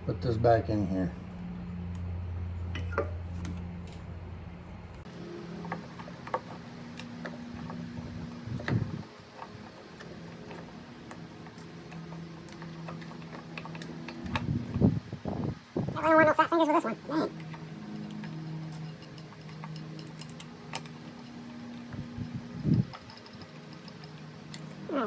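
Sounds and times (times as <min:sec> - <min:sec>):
small metal parts clicking: 0:05.1 - 0:15.0, 0:17.3 - 0:25.0.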